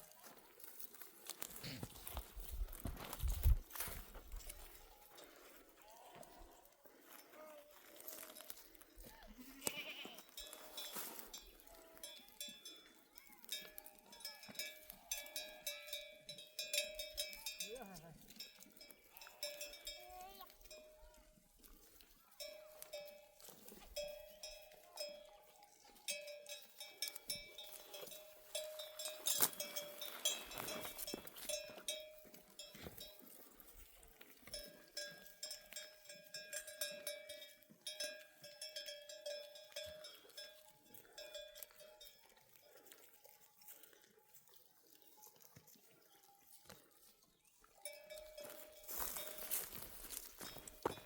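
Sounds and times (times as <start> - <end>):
sheep bells clanking: 1.6 - 44.4, 47.6 - 51.0.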